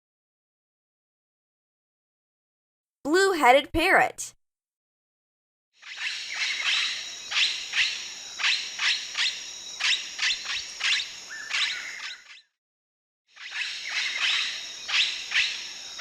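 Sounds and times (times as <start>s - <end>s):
high insect drone: 5.8s - 12.2s, 13.4s - 16.0s.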